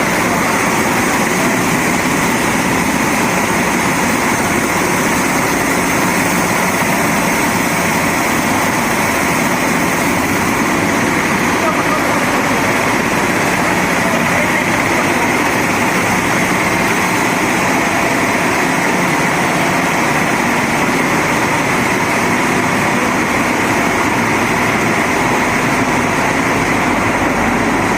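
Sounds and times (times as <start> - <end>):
machinery running: 0.0 - 27.9.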